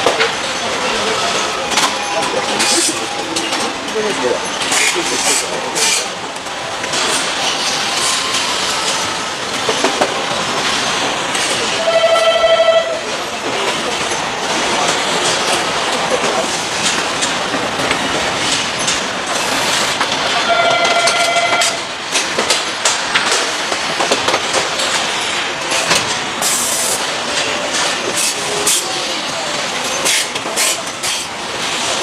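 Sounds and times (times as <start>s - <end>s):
horn-like warning tone: 11.8s - 13.0s, 20.4s - 21.8s
clicks and clatters: 13.6s - 20.3s, 20.9s - 26.3s.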